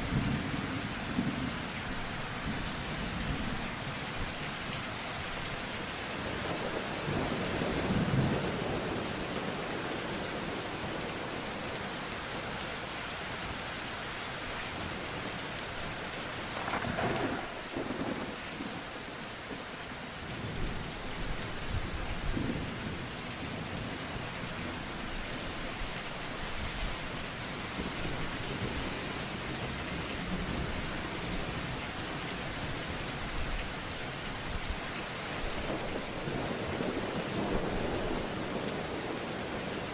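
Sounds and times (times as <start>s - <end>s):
steady rain: 0.0s - 39.9s
thunder rumbling: 16.6s - 18.4s.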